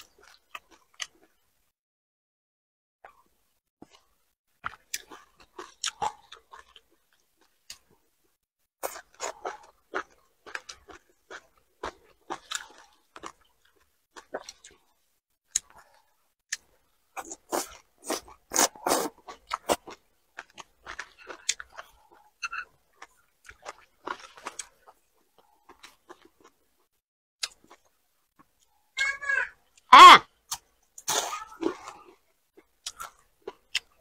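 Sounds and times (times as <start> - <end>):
chewing leafy vegetables: 4.6 - 8.0, 8.8 - 26.7, 29.7 - 34.0.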